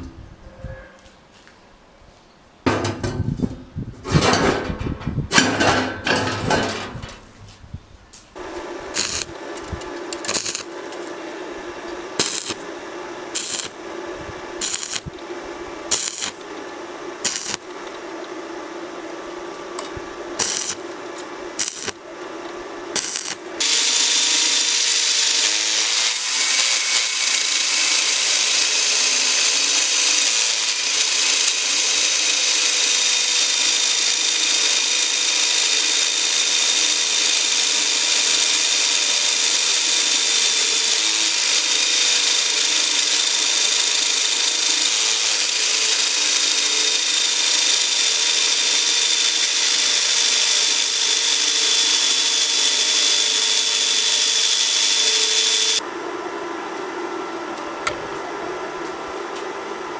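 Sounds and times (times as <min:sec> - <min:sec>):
steady hum: 0:06.7 - 0:30.0
power tool hissing and whining: 0:08.4 - 0:18.3, 0:19.7 - 0:55.8
sharp metallic clicks: 0:09.0 - 0:10.7, 0:12.2 - 0:12.6, 0:15.9 - 0:16.5, 0:17.2 - 0:18.0.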